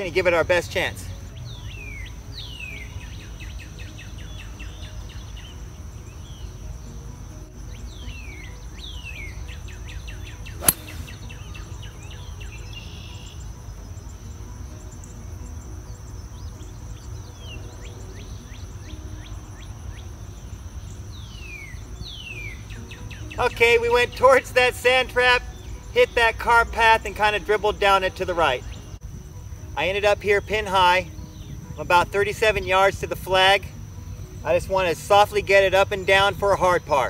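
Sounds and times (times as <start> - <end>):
high insect drone: 0.0 - 37.0
golf club striking ball: 10.6 - 11.4.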